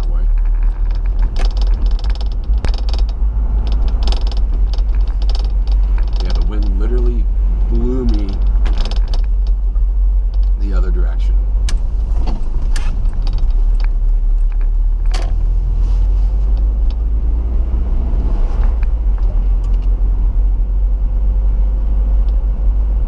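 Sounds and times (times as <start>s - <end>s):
sharp knocks or rattles: 0.0s - 10.7s, 11.6s - 15.4s
engine and road rumble: 0.0s - 23.0s.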